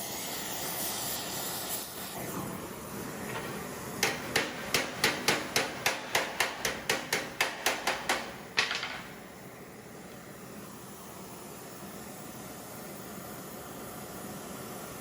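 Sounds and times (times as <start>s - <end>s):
hammer striking metal on anvil: 4.0s - 9.2s.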